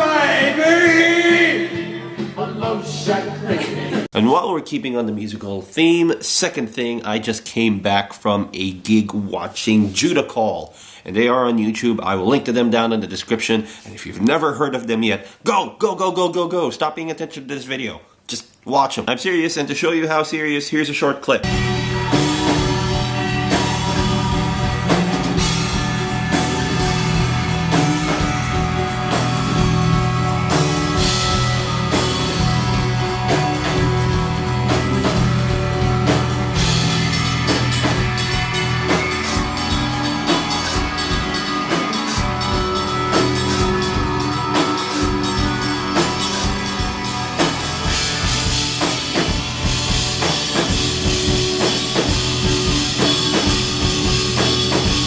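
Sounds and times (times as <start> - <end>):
drum kit beat: 0.0 - 4.1, 21.4 - 55.0
rock band playing live: 0.0 - 4.1, 21.4 - 55.0.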